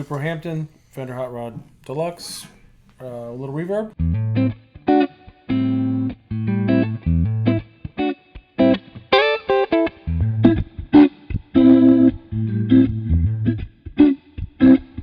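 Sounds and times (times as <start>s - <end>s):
low bass notes: 4.0s - 4.7s, 10.1s - 13.7s
electric guitar riff: 4.0s - 15.0s.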